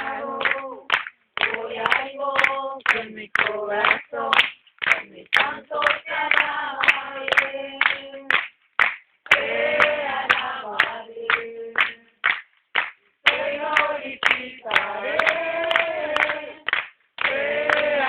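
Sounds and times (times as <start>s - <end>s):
group singing a worship song: 0.0s - 8.5s, 9.2s - 12.2s, 13.2s - 18.0s
people clapping in time: 0.0s - 18.0s.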